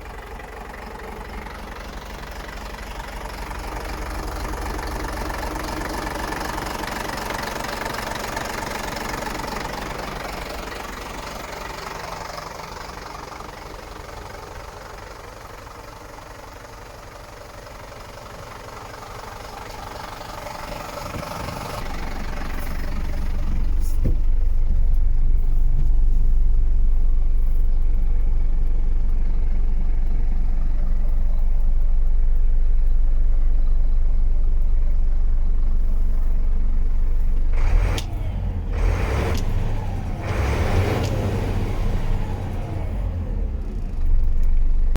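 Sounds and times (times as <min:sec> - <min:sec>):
diesel truck engine idling: 0:00.0 - 0:44.9.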